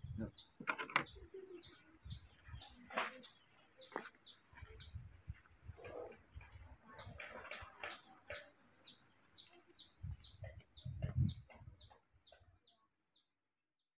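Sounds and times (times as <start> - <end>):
small bird chirping: 0.0 - 13.3
dull low thuds: 10.0 - 11.9.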